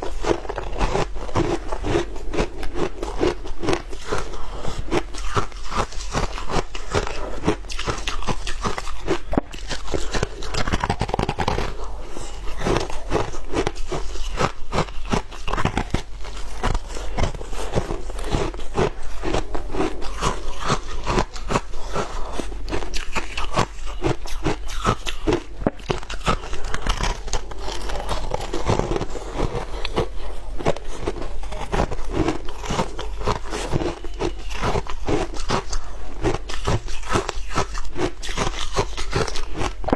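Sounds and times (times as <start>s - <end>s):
chewing crunching ice: 0.0s - 39.9s.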